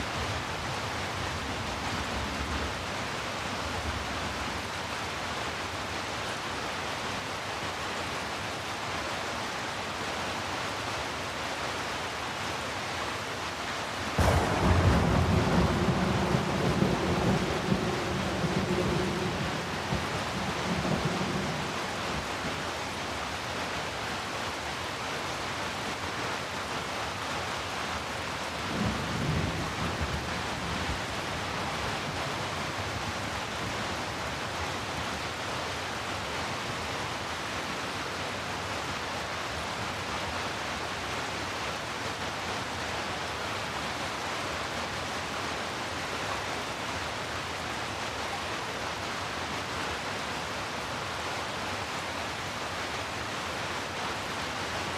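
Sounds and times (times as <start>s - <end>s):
heavy rain: 0.0s - 54.9s
thunder rumbling: 14.2s - 22.6s.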